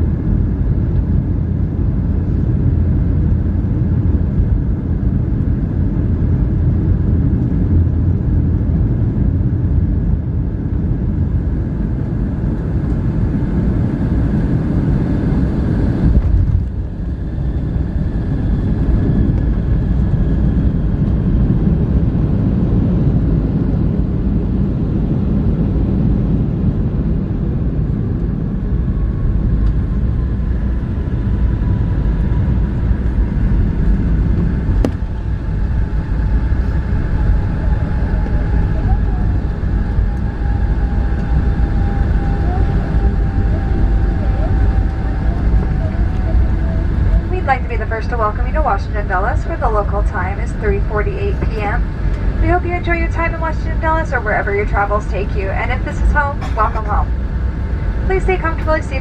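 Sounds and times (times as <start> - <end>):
airliner cabin engine rumble: 0.0 - 59.0.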